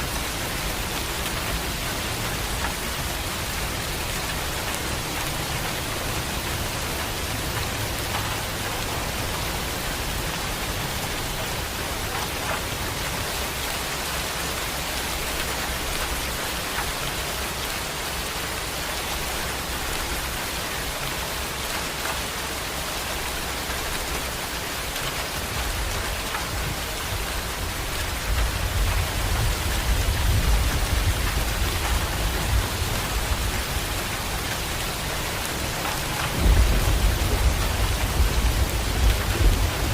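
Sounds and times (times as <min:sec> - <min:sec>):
heavy rain: 0:00.0 - 0:39.9
thunder rumble: 0:25.7 - 0:39.9.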